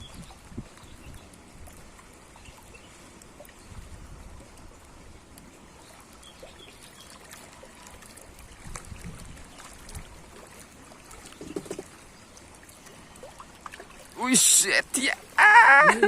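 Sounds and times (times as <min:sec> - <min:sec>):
water trickling and lapping: 0:00.0 - 0:16.0.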